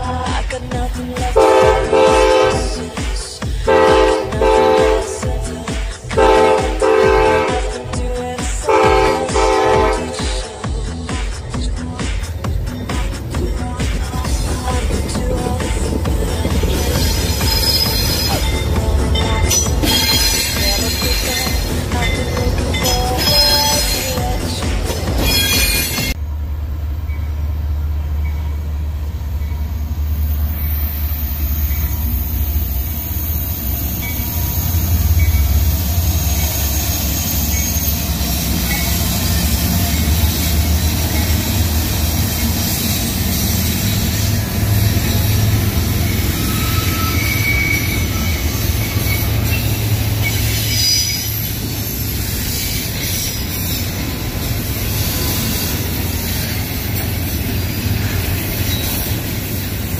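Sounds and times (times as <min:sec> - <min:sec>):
diesel locomotive rumble: 0:00.0 - 0:59.9
train cars rolling on rails: 0:00.0 - 0:59.9
high wheel squeals: 0:12.6 - 0:26.2, 0:27.1 - 0:59.9.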